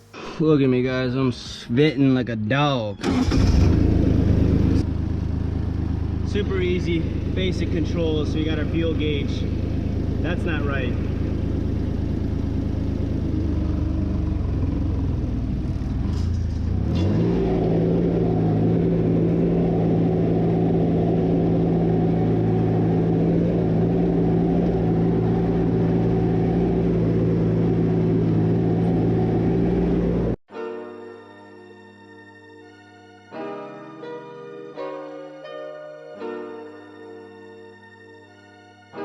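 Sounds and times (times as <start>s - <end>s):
diesel engine revving: 3.0s - 30.4s.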